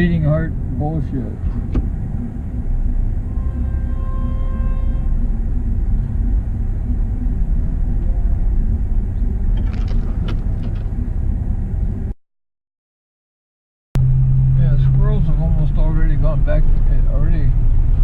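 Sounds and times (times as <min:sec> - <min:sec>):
vehicle rumbling on rough road: 0:00.0 - 0:12.2, 0:14.0 - 0:18.0.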